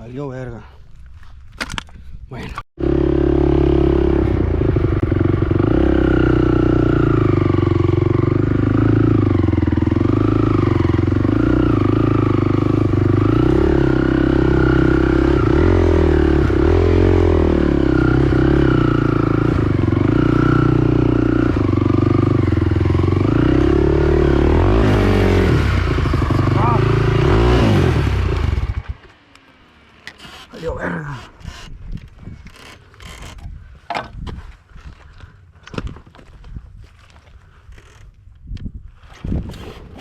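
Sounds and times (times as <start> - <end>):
engine revving while riding: 2.8 - 31.8.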